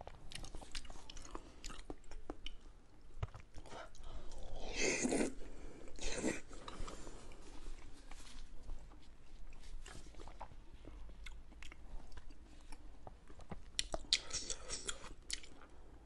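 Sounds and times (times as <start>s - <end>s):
small mouth clicks: 13.8s - 15.5s.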